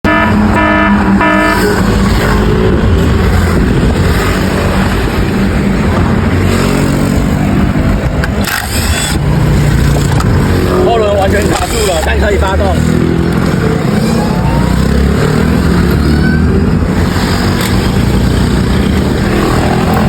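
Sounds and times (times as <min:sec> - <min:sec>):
short pitched tones: 0:00.1 - 0:02.4.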